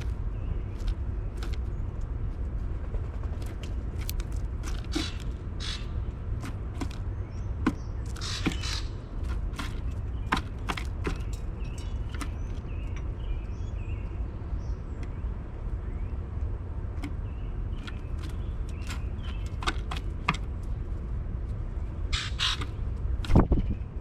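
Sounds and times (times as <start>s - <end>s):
bird pecking on wooden feeder: 3.2s - 13.2s, 16.8s - 20.9s.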